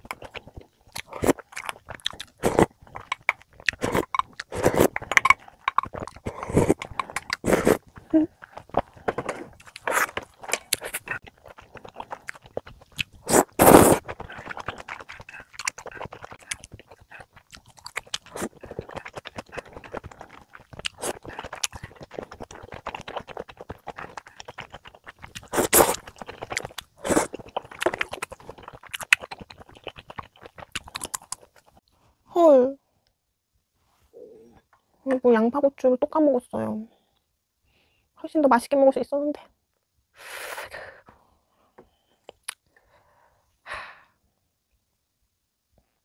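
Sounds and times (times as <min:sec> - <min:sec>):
wet mouth sounds: 0:00.0 - 0:31.8, 0:42.2 - 0:42.6
person chewing: 0:00.0 - 0:32.0, 0:42.2 - 0:42.6
chopsticks clicking and scraping: 0:00.9 - 0:07.8, 0:08.4 - 0:13.1.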